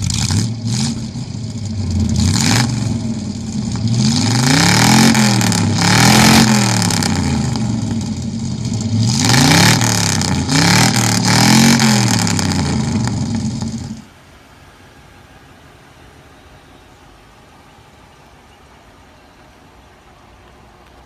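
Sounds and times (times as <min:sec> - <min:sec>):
car engine revving in blips: 0:00.0 - 0:14.1.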